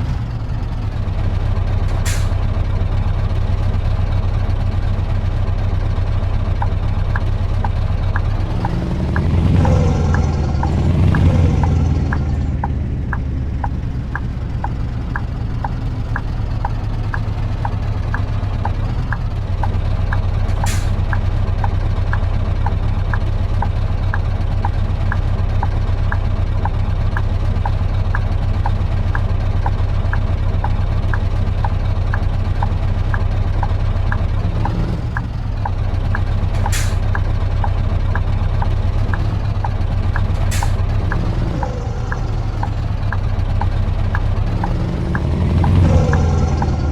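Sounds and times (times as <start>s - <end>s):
diesel truck engine running: 0.0s - 46.9s
short air hisses: 2.0s - 2.4s, 20.5s - 21.0s, 36.6s - 37.0s
regular ticking: 8.2s - 46.9s.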